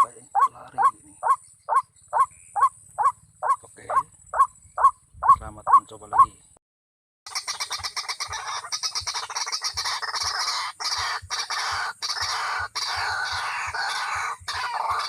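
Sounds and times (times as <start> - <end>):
waterhens calling harshly: 0.0 - 6.4, 7.3 - 15.0.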